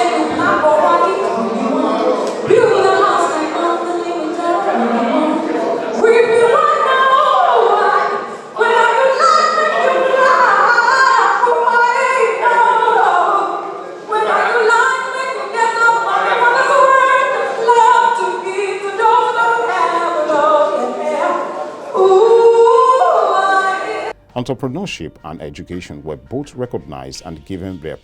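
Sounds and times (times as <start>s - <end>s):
person singing: 22.0s - 28.0s.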